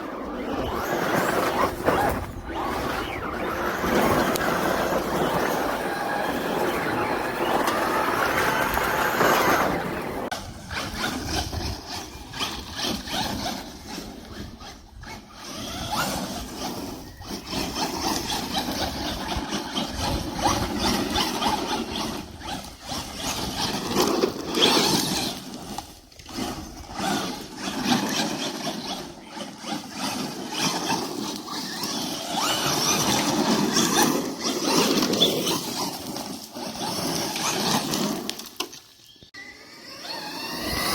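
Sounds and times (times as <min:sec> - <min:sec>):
toy car motor whining: 0:00.0 - 0:40.9.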